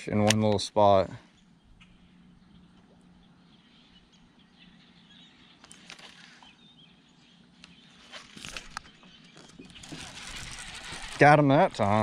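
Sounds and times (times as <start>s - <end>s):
faint bird chirps: 1.2s - 10.8s.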